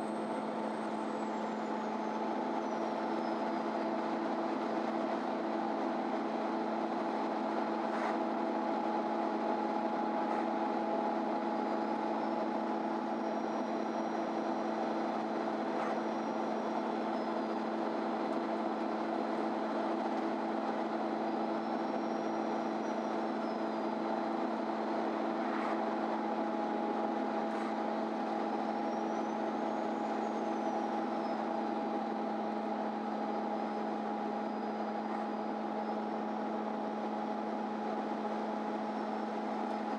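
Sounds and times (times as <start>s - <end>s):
bus engine drone: 0.0s - 39.9s.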